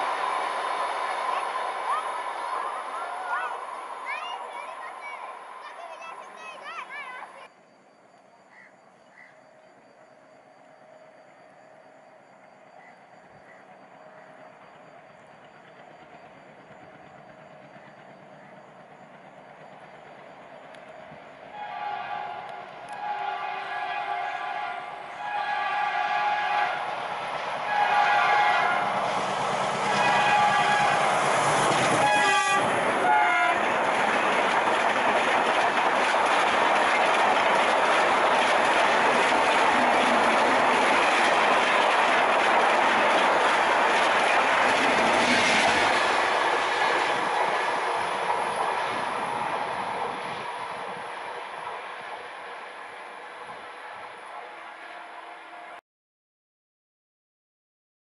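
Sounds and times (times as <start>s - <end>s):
locomotive horn blasts: 21.5s - 27.0s, 27.6s - 29.0s, 29.8s - 31.3s, 31.9s - 33.7s, 54.0s - 55.8s
train wheels clattering on rails: 26.9s - 52.2s.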